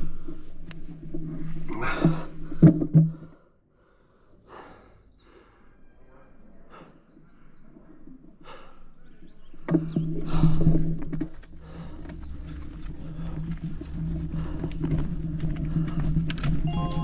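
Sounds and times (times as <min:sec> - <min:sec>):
bird chirping: 0:04.8 - 0:07.7.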